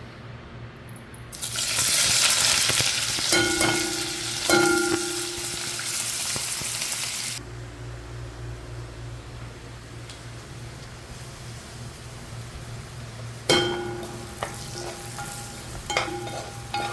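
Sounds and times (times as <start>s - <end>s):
chicken sizzling in hot oil: 1.3s - 7.4s.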